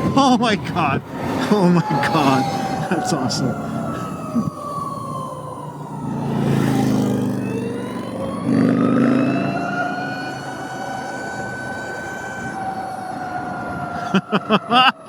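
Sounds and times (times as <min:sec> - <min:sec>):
wind on microphone: 0:00.0 - 0:05.2, 0:11.2 - 0:14.4
electric motorcycle motor whine: 0:01.0 - 0:14.0.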